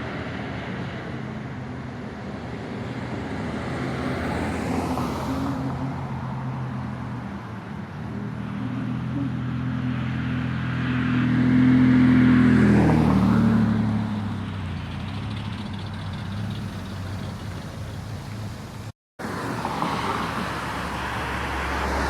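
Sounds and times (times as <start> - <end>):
car driving past: 19.2 - 22.0.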